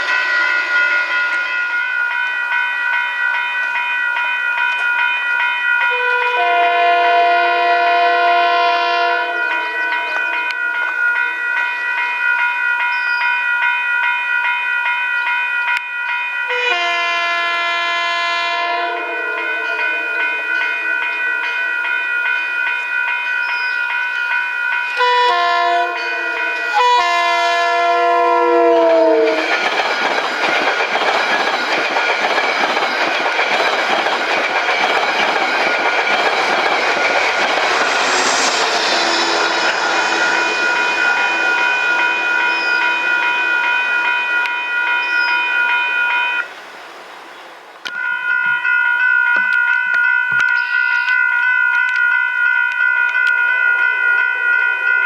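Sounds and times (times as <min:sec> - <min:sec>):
train passing by: 0:00.0 - 0:55.0
train horn: 0:05.9 - 0:10.0, 0:16.5 - 0:19.9, 0:25.0 - 0:29.5, 0:37.6 - 0:46.4.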